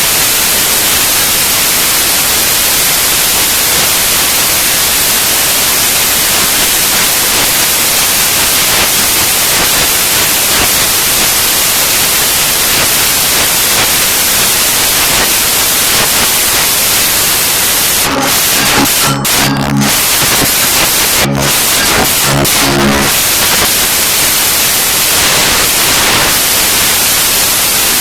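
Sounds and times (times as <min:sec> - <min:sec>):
loud steady hiss: 0:00.0 - 0:28.0
short pitched notes: 0:18.0 - 0:23.7.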